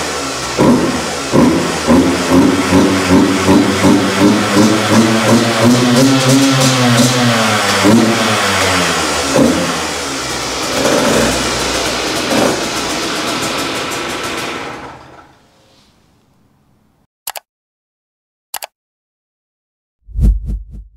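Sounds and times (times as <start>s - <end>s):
two-stroke engine revving: 0.0s - 15.1s.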